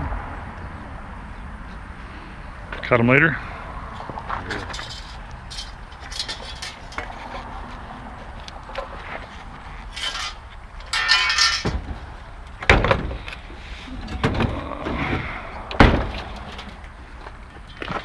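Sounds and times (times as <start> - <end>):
heavy metal clanks and thumps: 4.2 - 7.4, 9.9 - 16.9
scraping rattle: 4.5 - 7.5, 9.8 - 12.1.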